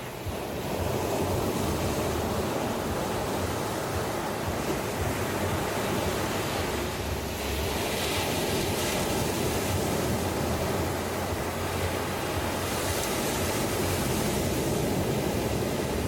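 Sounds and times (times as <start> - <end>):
ocean surf washing on beach: 0.0 - 16.0.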